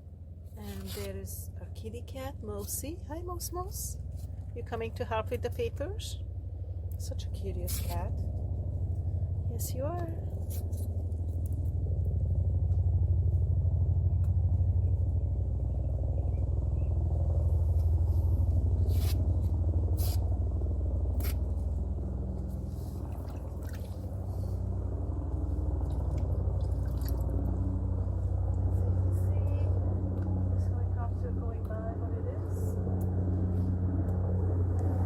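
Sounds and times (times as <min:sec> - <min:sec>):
helicopter flying past: 0:00.0 - 0:35.0.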